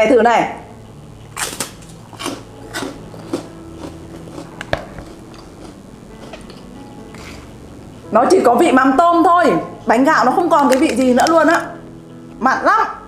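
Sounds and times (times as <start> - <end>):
rice cracker crunching: 1.4 - 7.5.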